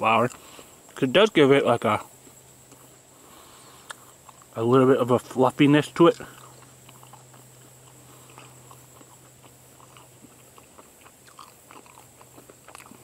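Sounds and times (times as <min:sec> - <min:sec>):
person chewing: 0:00.2 - 0:00.6, 0:02.2 - 0:04.6, 0:06.0 - 0:13.0.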